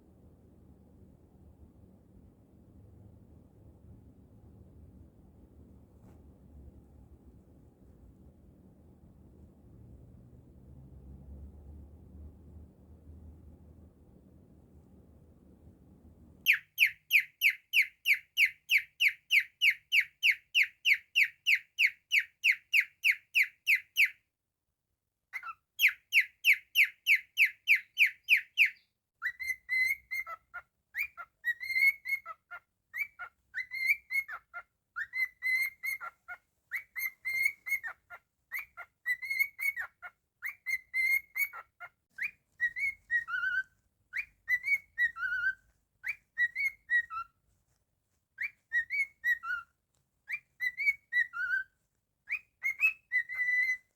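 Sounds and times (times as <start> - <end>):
cockatiel whistling: 16.5 - 24.2, 25.3 - 47.3, 48.4 - 49.7, 50.3 - 51.7, 52.3 - 53.9.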